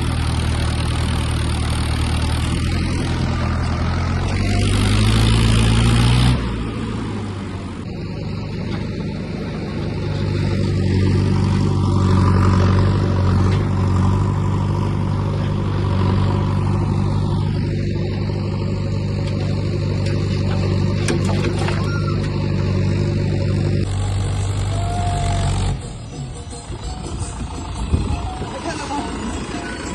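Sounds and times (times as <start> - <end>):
tractor engine running: 0.0 - 29.9.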